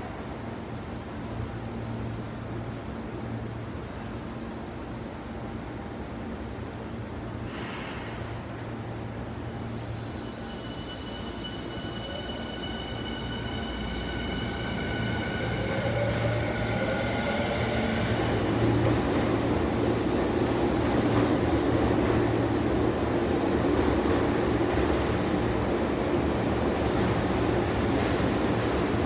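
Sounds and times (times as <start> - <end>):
train wheels rumbling on rails: 9.6 - 29.0.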